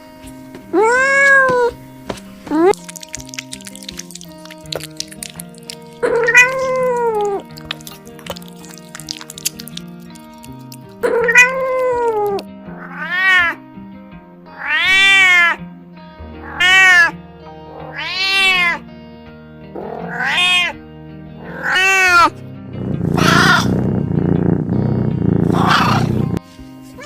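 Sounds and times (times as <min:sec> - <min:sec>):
background music with held notes: 0:00.0 - 0:24.0, 0:25.6 - 0:27.0
cat meowing: 0:00.7 - 0:01.8, 0:02.5 - 0:09.8, 0:10.5 - 0:13.6, 0:14.6 - 0:15.6, 0:16.4 - 0:17.1, 0:17.7 - 0:18.8, 0:19.8 - 0:20.8, 0:21.4 - 0:22.3, 0:23.0 - 0:23.8, 0:25.5 - 0:26.3.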